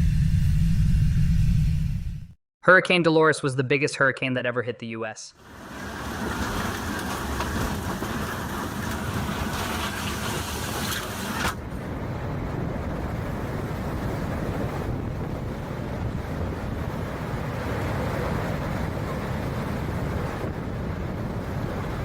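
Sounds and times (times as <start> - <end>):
rain: 5.4 - 11.6
hurricane wind: 5.4 - 22.0
wind buffeting microphone: 5.6 - 22.0.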